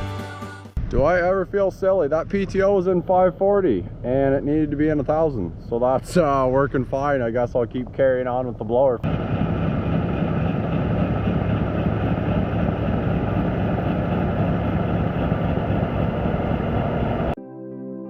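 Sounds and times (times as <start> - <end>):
diesel tractor running under load: 9.0 - 17.4.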